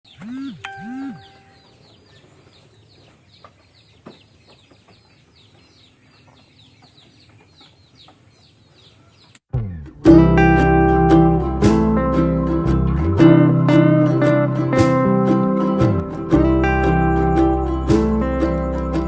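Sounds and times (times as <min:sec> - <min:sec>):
birds chirping: 0:00.1 - 0:19.0
rising-and-falling tones: 0:00.2 - 0:01.6.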